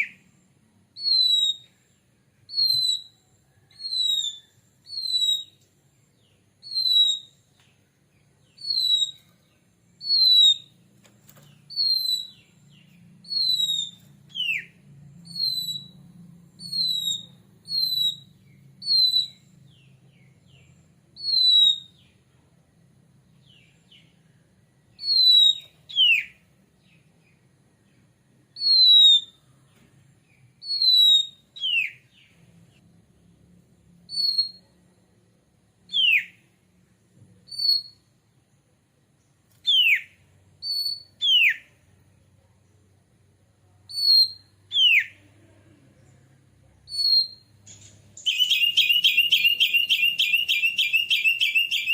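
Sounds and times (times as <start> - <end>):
bird whistled calls: 1.0 - 1.8, 2.5 - 5.6, 6.6 - 7.4, 8.5 - 9.4, 10.0 - 10.8, 11.7 - 12.6, 13.2 - 16.0, 16.6 - 19.5, 21.2 - 22.1, 25.0 - 26.4, 28.6 - 29.4, 30.6 - 32.2, 34.1 - 34.7, 35.9 - 36.4, 37.5 - 38.0, 39.6 - 41.7, 43.9 - 45.2, 46.9 - 51.9.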